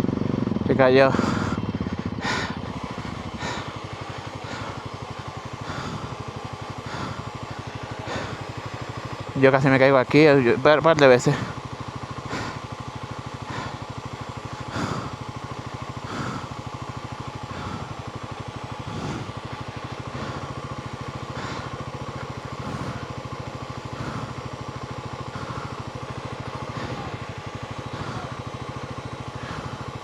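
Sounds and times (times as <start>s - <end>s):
motorcycle engine running at low revs: 0.0s - 30.0s.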